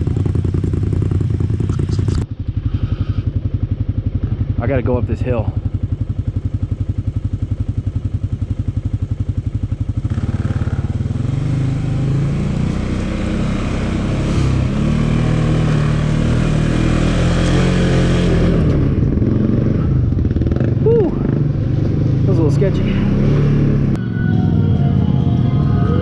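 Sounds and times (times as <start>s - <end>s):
dirt bike engine revving: 9.9s - 24.6s.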